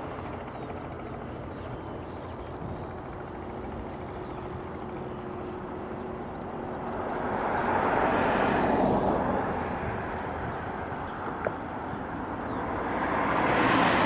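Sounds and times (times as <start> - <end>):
light aircraft passing: 0.0 - 14.0.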